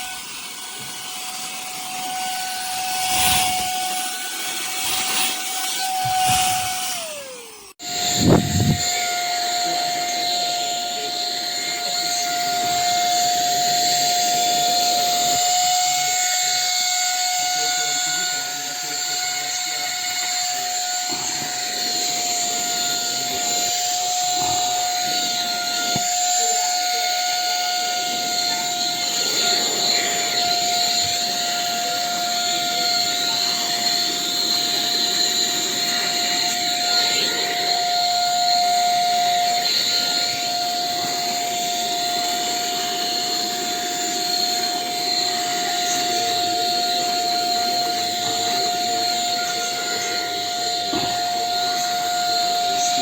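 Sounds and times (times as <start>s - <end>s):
handheld vacuum motor whine: 0.0s - 53.0s
rush of air: 8.1s - 8.9s.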